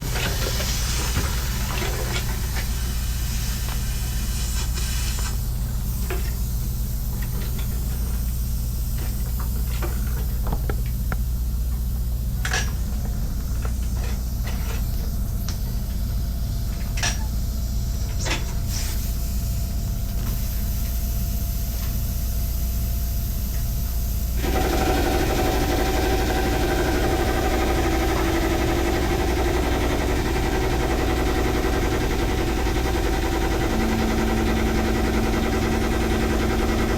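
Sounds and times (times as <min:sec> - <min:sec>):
vehicle engine idling: 0:24.4 - 0:36.9.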